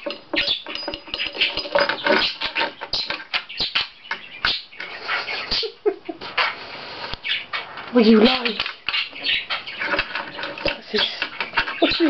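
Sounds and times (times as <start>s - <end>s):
budgerigar chattering and chirping: 0.3s - 12.0s.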